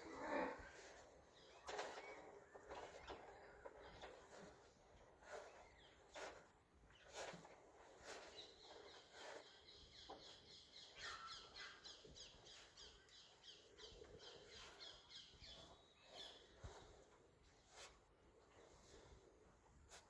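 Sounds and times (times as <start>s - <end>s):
faint outdoor background: 0.0s - 20.0s.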